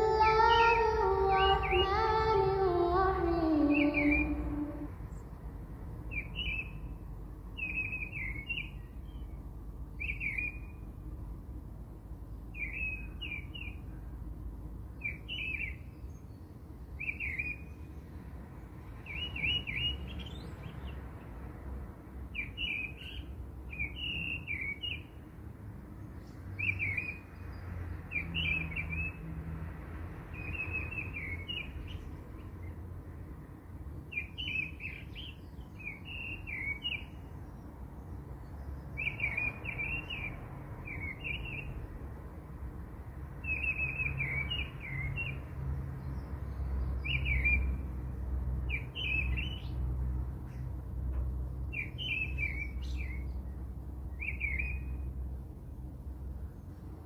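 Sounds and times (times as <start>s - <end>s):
small birds chirping: 0.0s - 5.4s, 6.0s - 11.0s, 14.9s - 21.4s, 22.2s - 25.3s, 26.0s - 29.2s, 30.4s - 32.9s, 33.8s - 42.0s, 43.4s - 47.8s, 48.6s - 49.8s, 51.4s - 57.0s.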